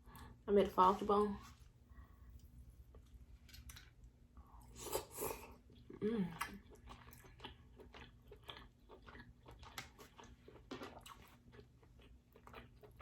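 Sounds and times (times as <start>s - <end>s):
chewing with mouth clicks: 4.8s - 13.0s.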